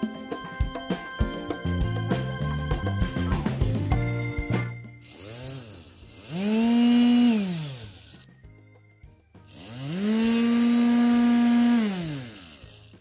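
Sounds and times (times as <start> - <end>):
power tool motor spinning: 5.0 - 8.3, 9.5 - 13.0.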